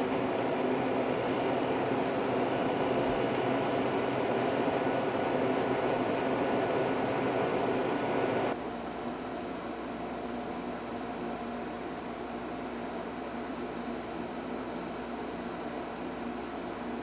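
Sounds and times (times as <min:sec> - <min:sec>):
air conditioner blowing and humming: 0:00.0 - 0:17.0.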